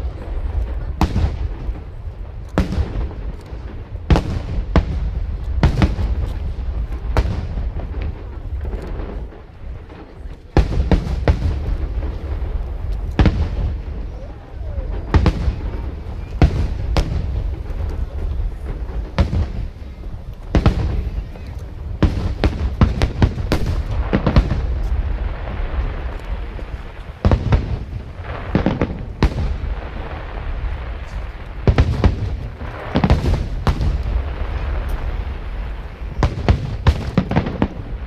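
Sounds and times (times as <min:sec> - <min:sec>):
fireworks bangs and crackles: 0:00.0 - 0:38.0.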